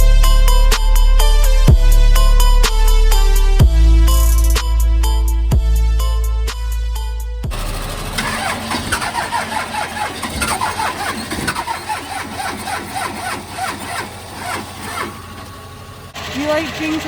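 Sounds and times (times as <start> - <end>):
diesel engine cranking on starter: 7.4 - 17.0.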